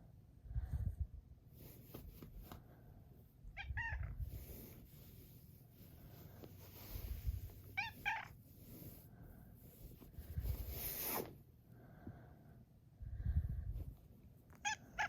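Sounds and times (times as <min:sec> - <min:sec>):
cat meowing: 0:03.6 - 0:04.3, 0:07.8 - 0:08.4, 0:14.6 - 0:15.0
soft low rumbling: 0:12.9 - 0:14.1.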